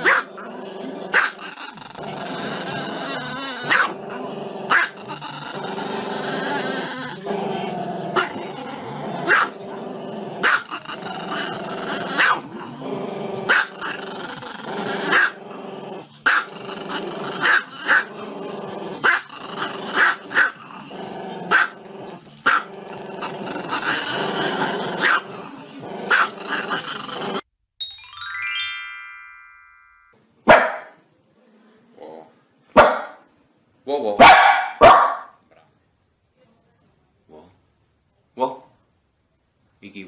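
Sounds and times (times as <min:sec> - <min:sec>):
dog barking: 0:00.0 - 0:00.3, 0:03.7 - 0:04.0, 0:09.3 - 0:09.6, 0:10.4 - 0:10.7, 0:12.2 - 0:12.4, 0:13.5 - 0:13.7, 0:15.1 - 0:15.4, 0:21.5 - 0:21.7, 0:25.0 - 0:25.2, 0:26.1 - 0:26.4, 0:30.5 - 0:31.0, 0:32.8 - 0:33.2, 0:34.2 - 0:35.4
dog growling: 0:00.0 - 0:27.5.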